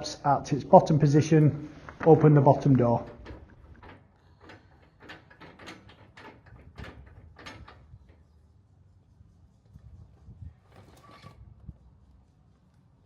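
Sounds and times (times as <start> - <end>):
metal clicks and knocks: 1.8 - 8.3.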